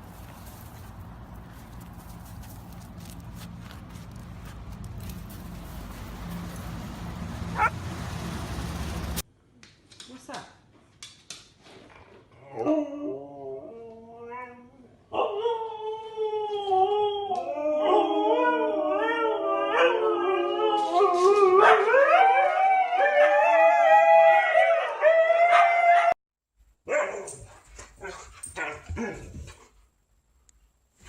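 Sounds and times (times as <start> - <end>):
dog barking and yipping: 7.4 - 7.8, 26.9 - 29.3
husky howling: 7.4 - 7.8, 15.2 - 26.2.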